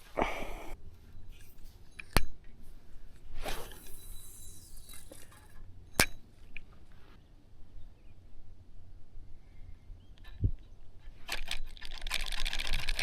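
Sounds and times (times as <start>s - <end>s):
short swish: 3.4s - 4.0s.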